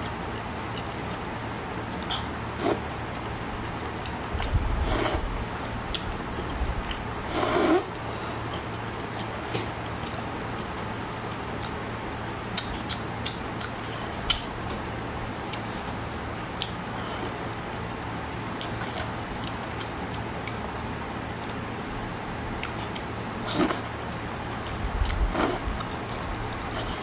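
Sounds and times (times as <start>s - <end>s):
wet chewing clicks and smacks: 1.8s - 4.6s, 5.9s - 7.1s, 8.6s - 15.8s, 16.5s - 21.6s, 22.6s - 23.2s
steady hiss: 4.7s - 5.5s, 7.2s - 8.6s.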